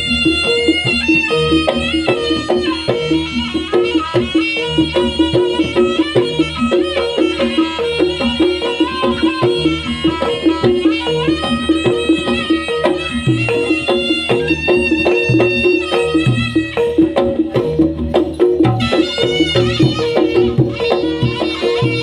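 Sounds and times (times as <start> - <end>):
hand drums: 0.0 - 22.0
struck gamelan notes: 0.0 - 22.0
wavering reed melody: 0.0 - 22.0.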